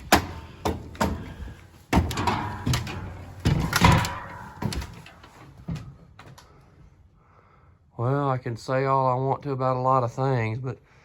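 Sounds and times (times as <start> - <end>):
knocks and thumps on floor: 0.0 - 6.0.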